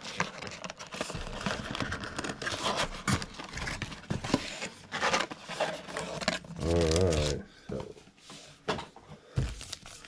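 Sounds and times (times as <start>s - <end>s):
packaging crinkling and tearing: 0.0s - 7.4s.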